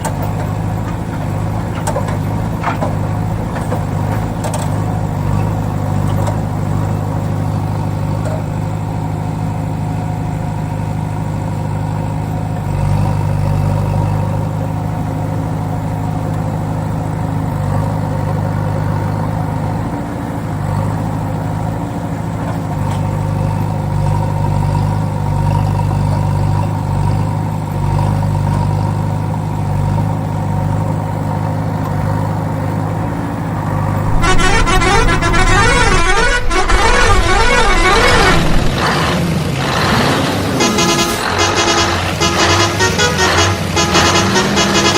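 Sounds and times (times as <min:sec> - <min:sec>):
diesel engine running steadily: 0:00.0 - 0:44.9.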